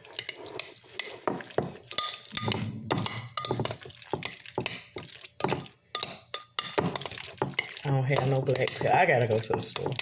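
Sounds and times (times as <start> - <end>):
utensil stirring in a bowl: 0.0 - 10.0.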